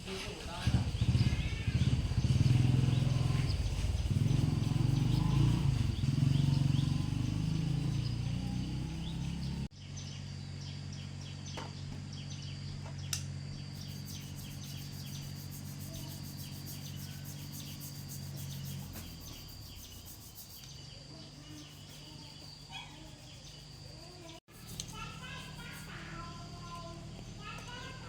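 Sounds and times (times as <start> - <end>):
birds chirping: 0.0 - 28.0
insect high drone: 0.3 - 11.4, 12.1 - 28.0
loud low hum: 0.6 - 20.7.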